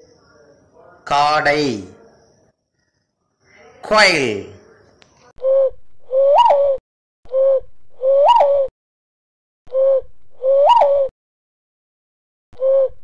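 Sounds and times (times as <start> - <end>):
bird calling: 4.5 - 8.7, 9.7 - 11.1, 12.6 - 13.0.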